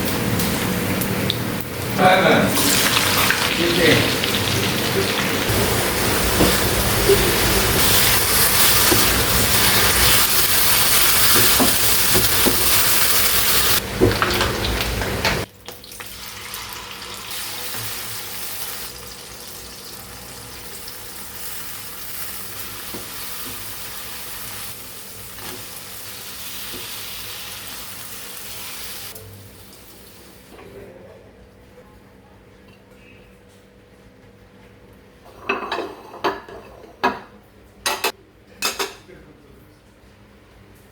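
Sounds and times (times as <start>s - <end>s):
food sizzling in a pan: 1.9s - 30.5s.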